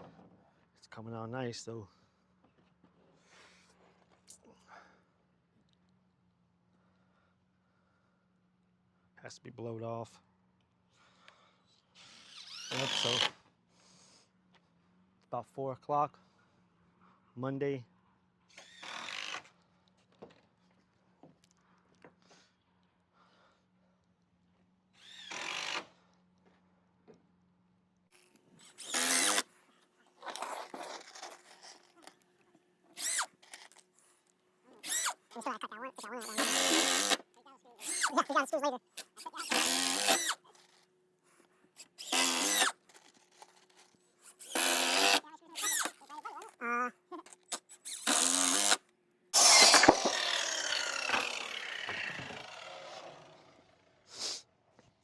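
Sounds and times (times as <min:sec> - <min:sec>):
power drill drilling: 0:12.0 - 0:13.4, 0:18.6 - 0:19.5, 0:25.0 - 0:25.9, 0:28.2 - 0:29.5, 0:33.0 - 0:33.7, 0:34.8 - 0:38.4, 0:39.0 - 0:40.4, 0:41.8 - 0:46.2, 0:47.4 - 0:48.8, 0:49.4 - 0:53.8
electric saw cutting and spinning down: 0:12.1 - 0:13.3, 0:28.6 - 0:29.5, 0:33.0 - 0:33.4, 0:34.8 - 0:40.4, 0:41.8 - 0:42.8, 0:44.3 - 0:46.2, 0:47.5 - 0:48.8, 0:49.4 - 0:54.1.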